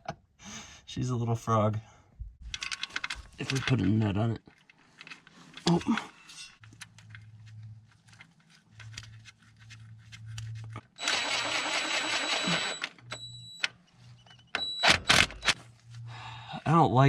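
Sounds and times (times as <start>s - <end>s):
power tool motor whining: 11.0s - 13.3s.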